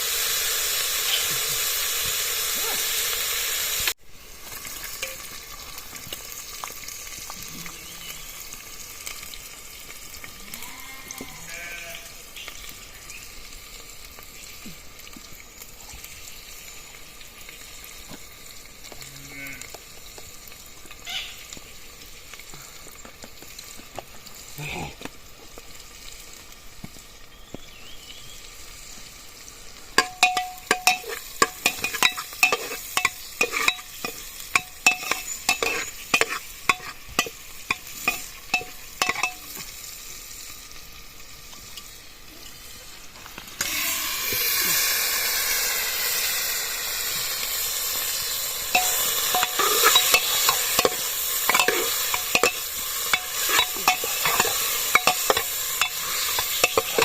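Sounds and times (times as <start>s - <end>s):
frying sizzle: 0.0s - 57.0s
metal spoon scraping a pan: 30.0s - 39.7s, 48.7s - 57.0s.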